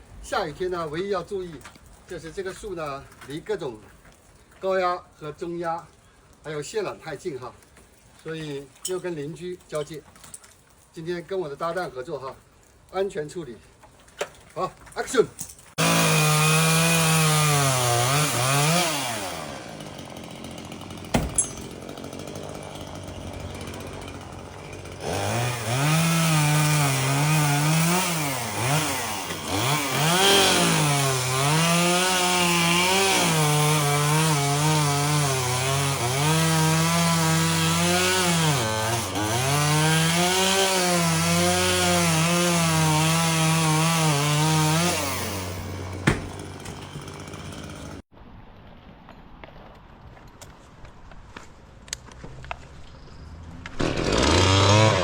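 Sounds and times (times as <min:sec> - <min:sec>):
chainsaw cutting branches: 0:15.6 - 0:48.0, 0:53.6 - 0:55.0.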